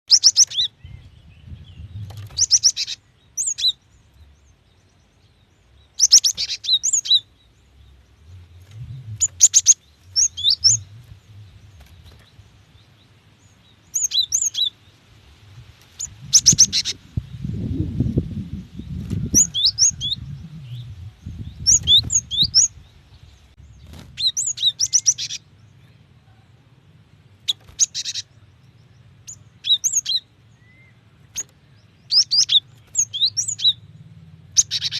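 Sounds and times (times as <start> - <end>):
bird chattering and whistling: 0.1 - 3.8, 6.0 - 7.3, 8.7 - 11.1, 13.9 - 14.8, 16.0 - 17.6, 19.2 - 20.8, 21.4 - 22.7, 24.2 - 25.5, 27.4 - 28.4, 29.2 - 31.5, 32.1 - 33.9, 34.5 - 34.9
low rumble: 7.4 - 13.5, 15.2 - 27.5.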